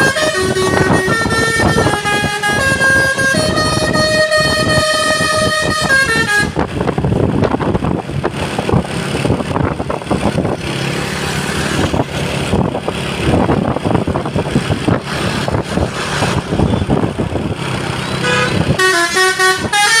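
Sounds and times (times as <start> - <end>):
musical truck horn melody: 0.0 - 6.8, 18.1 - 20.0
loud vehicle noise: 0.0 - 20.0.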